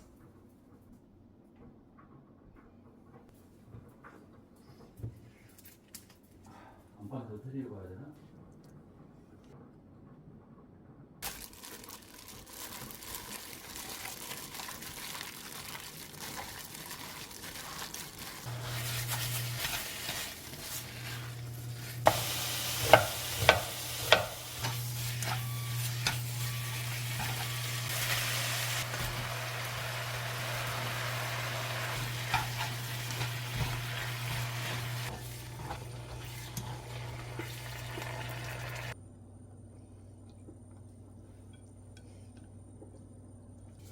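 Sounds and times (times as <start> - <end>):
meat sizzling in a frying pan: 11.3 - 39.0
utensil clanking on pan: 22.0 - 26.4, 31.4 - 37.5.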